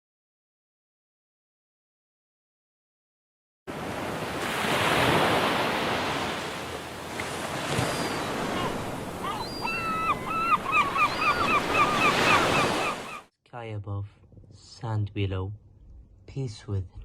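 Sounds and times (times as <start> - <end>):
sea waves washing in: 3.7 - 13.2
bird calling repeated notes: 7.7 - 13.2.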